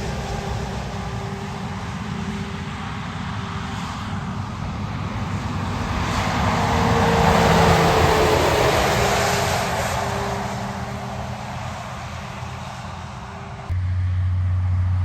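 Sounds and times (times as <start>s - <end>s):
vehicle passing by: 0.0s - 15.0s
vehicle whine: 0.0s - 15.0s.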